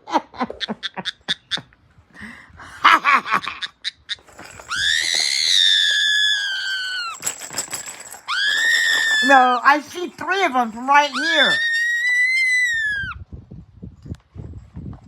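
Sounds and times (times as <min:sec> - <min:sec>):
parrot squawking and screeching: 0:03.9 - 0:07.2, 0:08.3 - 0:09.8, 0:10.8 - 0:13.2.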